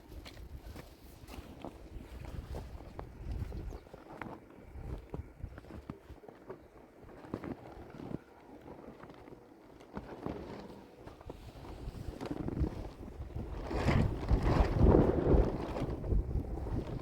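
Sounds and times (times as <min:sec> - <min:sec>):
wind gusting against microphone: 0:01.8 - 0:03.9, 0:11.6 - 0:17.0.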